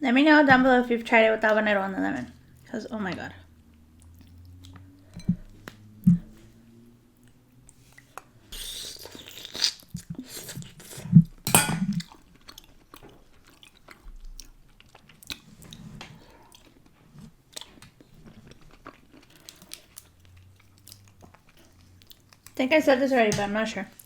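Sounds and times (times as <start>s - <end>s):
close chewing mouth clicks: 12.0s - 15.8s, 17.5s - 22.6s.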